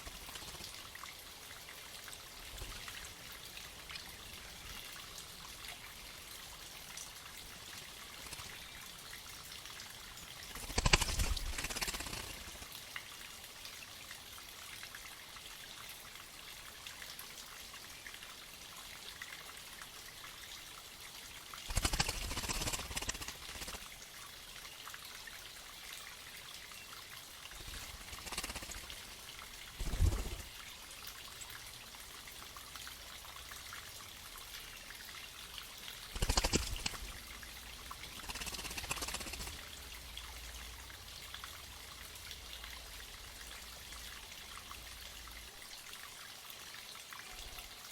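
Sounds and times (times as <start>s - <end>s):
spring water trickling: 0.0s - 16.3s, 17.0s - 46.9s
birds splashing in water: 10.4s - 12.6s, 21.7s - 23.9s, 27.6s - 30.6s, 36.1s - 37.4s, 38.0s - 39.8s.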